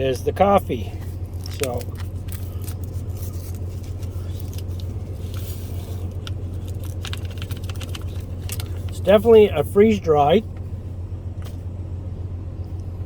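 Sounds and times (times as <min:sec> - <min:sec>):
low hum: 0:00.0 - 0:13.0
packet crackling: 0:01.2 - 0:09.1.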